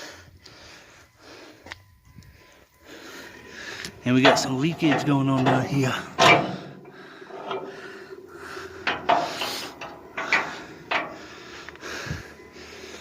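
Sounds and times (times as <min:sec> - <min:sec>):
knocks and scrapes: 0:04.2 - 0:11.2.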